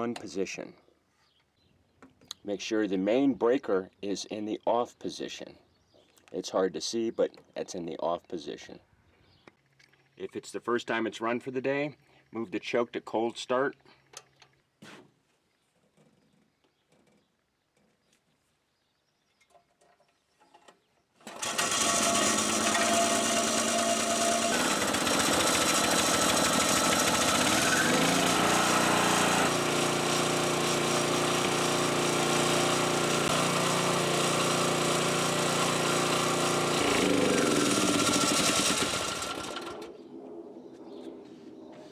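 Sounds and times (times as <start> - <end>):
portable generator engine running: 21.2 - 39.9.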